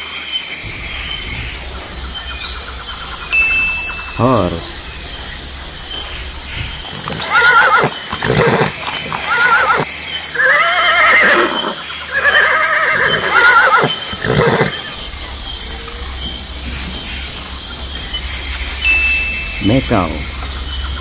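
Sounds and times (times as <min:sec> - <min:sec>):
steady background hiss: 0:00.2 - 0:21.0
horse whinnying: 0:09.3 - 0:14.8.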